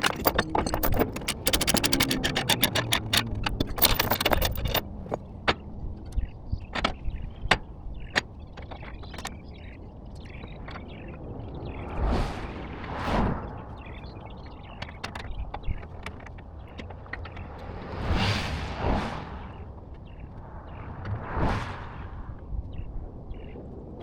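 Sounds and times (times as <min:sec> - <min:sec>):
sharp metallic clicks and rattles: 0:00.0 - 0:11.0, 0:14.7 - 0:17.7.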